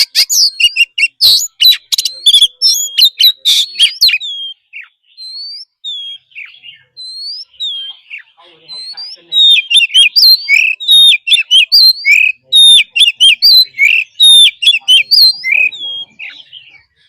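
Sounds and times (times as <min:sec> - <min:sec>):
bird singing whistles: 0:00.0 - 0:17.0.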